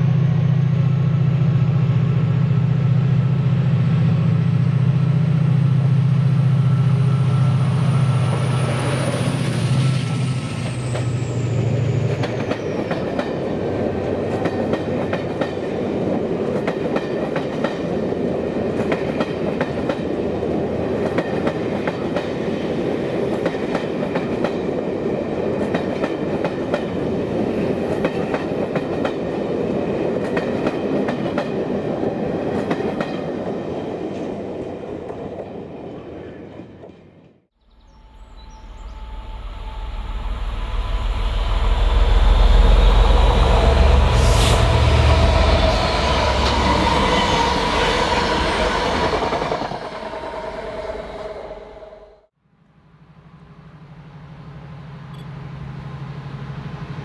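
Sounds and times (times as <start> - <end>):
diesel locomotive engine: 0.0 - 57.0
rush of train wheels: 4.0 - 35.6, 38.1 - 52.3
high whistle falling in pitch: 37.9 - 44.7.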